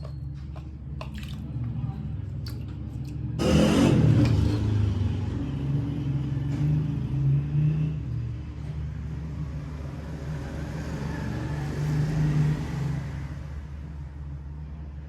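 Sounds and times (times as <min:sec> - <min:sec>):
power tool motor running: 0:03.4 - 0:04.6.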